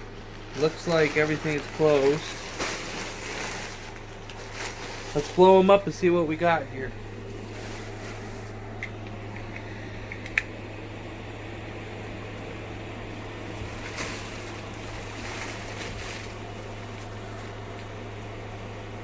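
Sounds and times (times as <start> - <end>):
rustling: 0.0 - 6.0, 7.3 - 8.6, 13.5 - 18.0
blower fan humming: 0.0 - 19.0.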